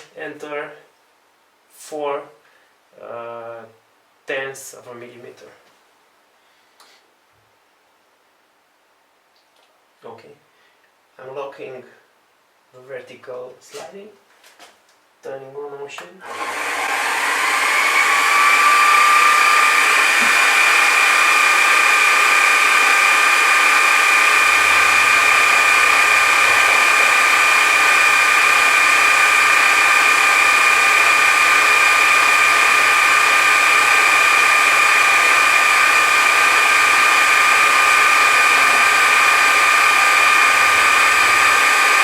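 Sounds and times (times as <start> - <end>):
electric motor high-pitched whine: 16.2 - 42.0.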